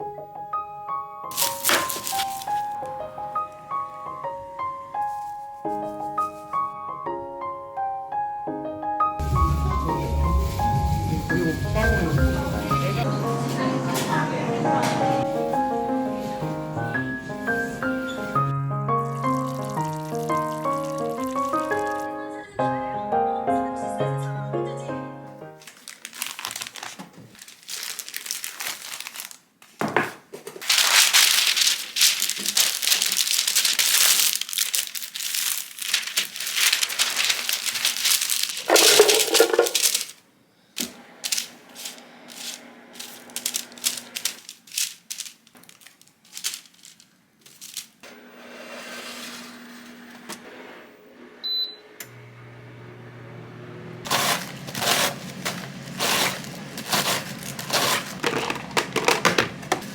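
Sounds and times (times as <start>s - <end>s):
crinkling and rustling: 1.3s - 3.7s, 4.3s - 6.6s, 17.2s - 22.2s, 25.6s - 40.2s, 40.8s - 48.0s, 54.1s - 59.9s.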